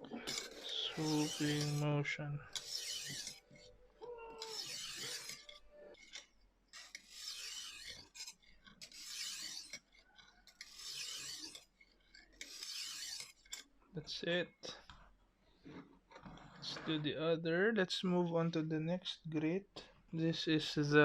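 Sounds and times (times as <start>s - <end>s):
sharpening stone rasping on knife: 0.2s - 1.9s, 2.5s - 3.8s, 4.4s - 13.7s.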